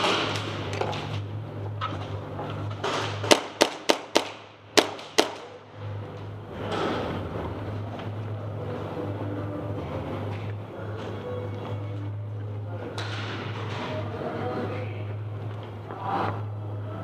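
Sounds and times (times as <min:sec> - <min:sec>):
steady low hum: 0:00.0 - 0:17.0
airsoft gun shots: 0:02.9 - 0:05.5.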